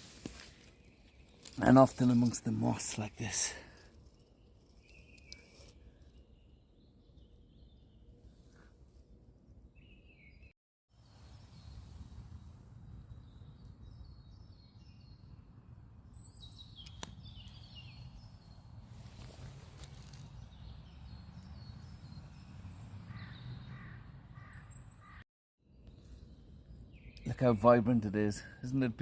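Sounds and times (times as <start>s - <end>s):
birds chirping and trilling: 16.1s - 25.2s, 25.9s - 29.0s.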